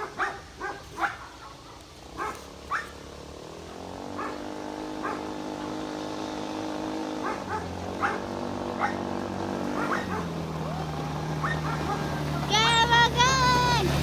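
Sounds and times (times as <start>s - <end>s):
dog barking: 0.0s - 3.0s, 4.1s - 5.8s, 7.2s - 9.1s, 9.7s - 10.4s, 11.4s - 12.2s.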